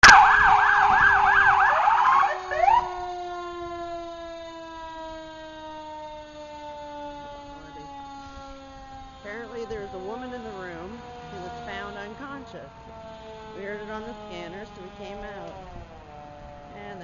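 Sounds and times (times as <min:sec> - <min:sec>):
short rising siren whoops: 0:00.0 - 0:09.5
mechanical siren winding down: 0:00.0 - 0:17.0
siren yelping: 0:00.0 - 0:17.0.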